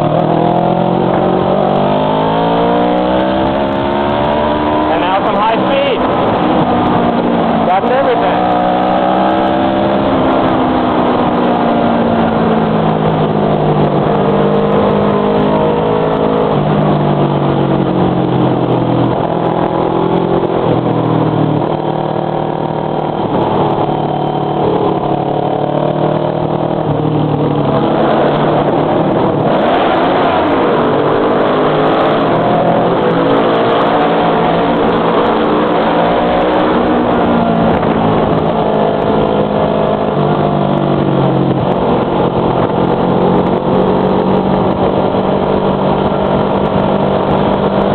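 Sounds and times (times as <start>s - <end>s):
motorcycle engine with loud muffler: 0.0s - 47.9s.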